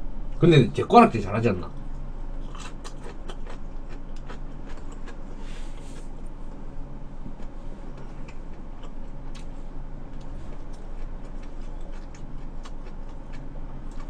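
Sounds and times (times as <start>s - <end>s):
steady low hum: 0.0s - 14.0s
chewing mouth clicks: 2.5s - 5.2s, 7.4s - 14.0s.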